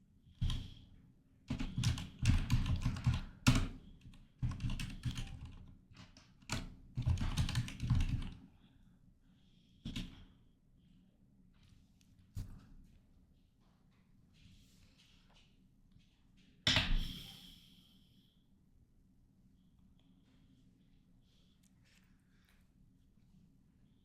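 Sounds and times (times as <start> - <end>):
computer keyboard typing: 1.5 - 8.4.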